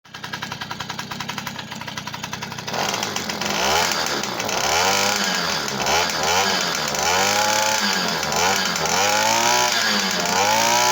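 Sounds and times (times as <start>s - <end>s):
moped engine idling and revving: 0.0s - 10.9s.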